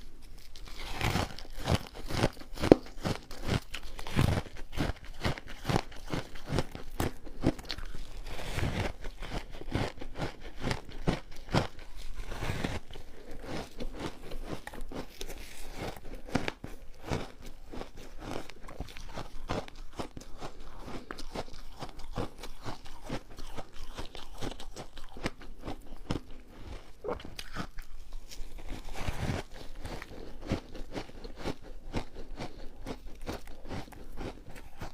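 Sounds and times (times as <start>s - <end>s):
person crunching ice: 0.3s - 34.9s.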